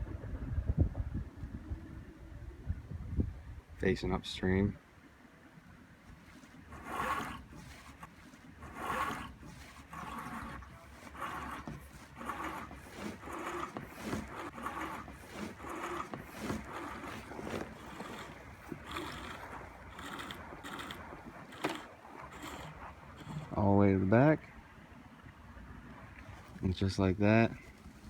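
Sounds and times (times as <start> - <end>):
rope rasping through pulleys: 6.1 - 23.7.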